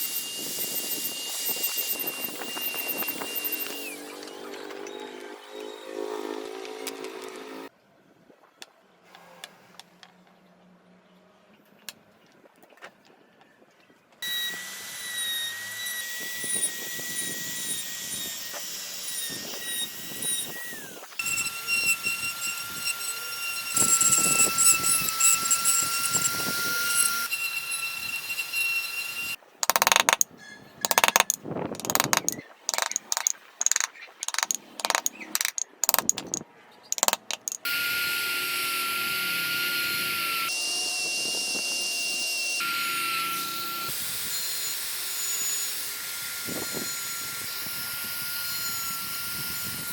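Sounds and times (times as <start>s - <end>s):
power tool whining on wood: 0.0s - 7.7s, 14.2s - 30.2s, 37.0s - 49.9s.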